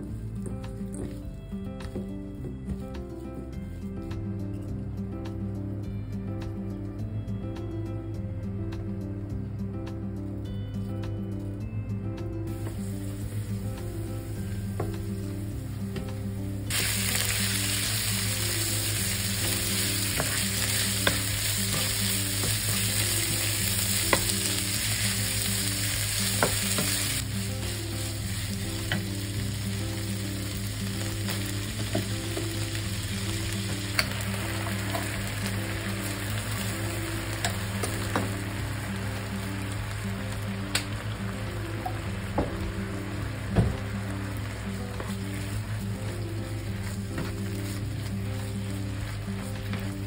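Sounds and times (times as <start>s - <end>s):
beef sizzling in frying pan: 12.5s - 50.0s.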